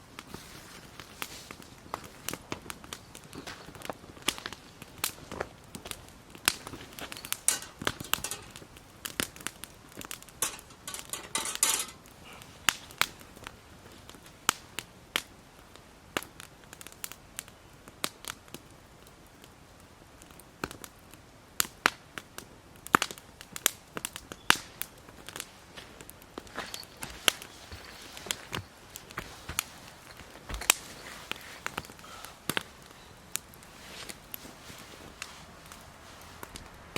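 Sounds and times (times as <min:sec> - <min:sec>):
dry wood crackling and snapping: 0:00.0 - 0:36.9
crumpling rustle: 0:00.1 - 0:14.7, 0:24.6 - 0:36.9.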